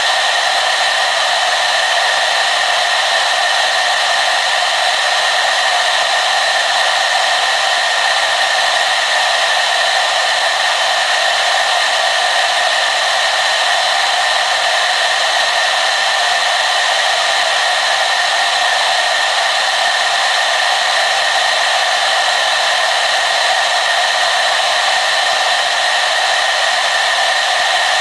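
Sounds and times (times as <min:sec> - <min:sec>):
hair dryer running: 0:00.0 - 0:28.0.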